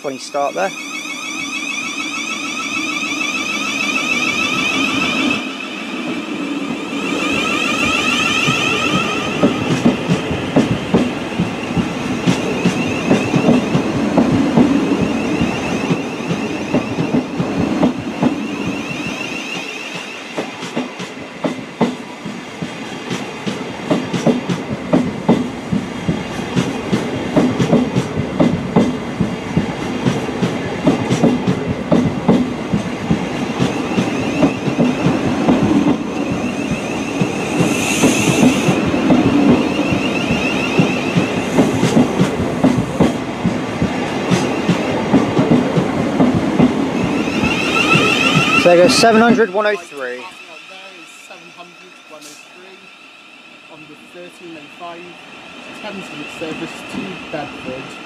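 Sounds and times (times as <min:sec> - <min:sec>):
high-pitched noise burst: 0:00.0 - 0:09.8, 0:47.0 - 0:57.6
train running rumble: 0:02.0 - 0:58.0
train wheels clattering over joints: 0:07.8 - 0:36.4, 0:37.1 - 0:49.8.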